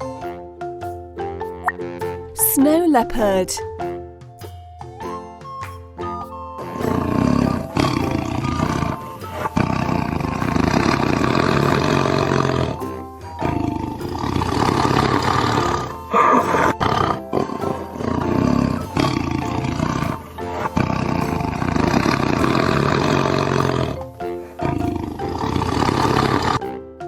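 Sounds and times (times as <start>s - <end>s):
background music: 0.0s - 27.0s
big cat calling: 6.6s - 26.6s.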